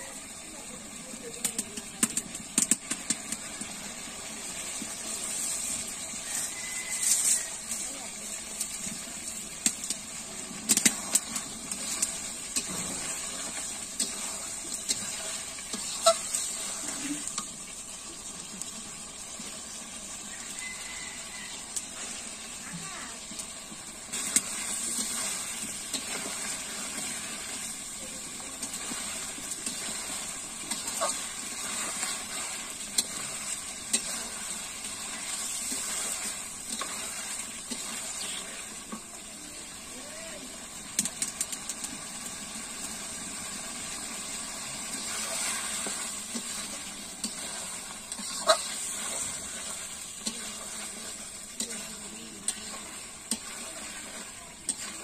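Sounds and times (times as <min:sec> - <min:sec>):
curry sizzling in a wok: 0:00.0 - 0:55.0
metal spatula scraping a pan: 0:05.1 - 0:07.8, 0:45.0 - 0:54.0.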